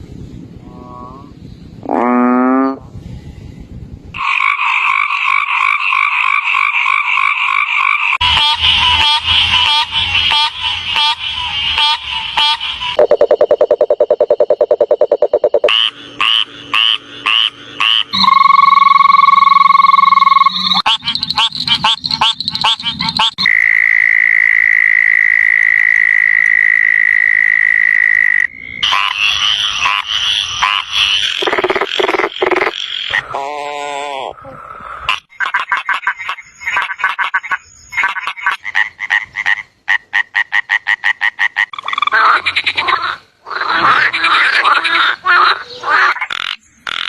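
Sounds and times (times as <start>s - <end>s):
frogs croaking: 12.9s - 47.0s
frog low buzzing trill: 13.0s - 22.7s, 23.4s - 34.3s
frog high-pitched trills: 13.0s - 34.3s.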